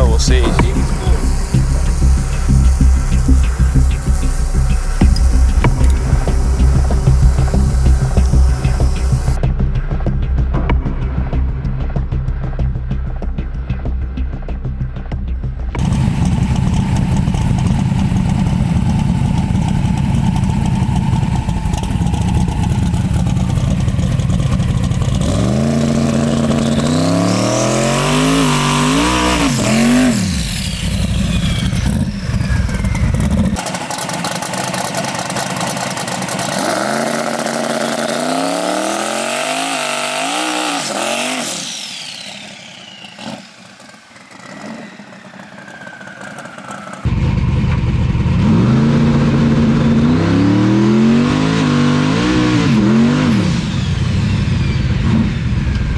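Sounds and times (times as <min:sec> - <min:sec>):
car engine revving: 0:00.0 - 0:09.4, 0:15.8 - 0:55.9
low engine rumble: 0:00.0 - 0:29.6, 0:46.6 - 0:50.1.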